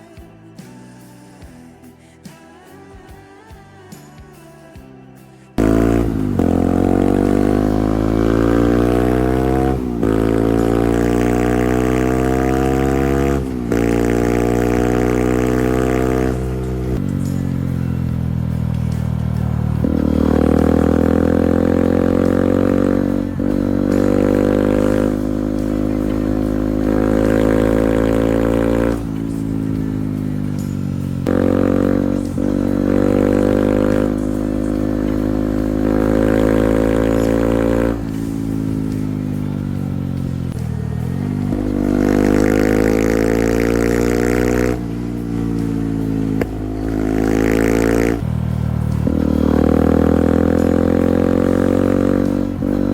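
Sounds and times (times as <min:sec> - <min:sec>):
motorcycle engine accelerating: 0:05.6 - 0:52.9.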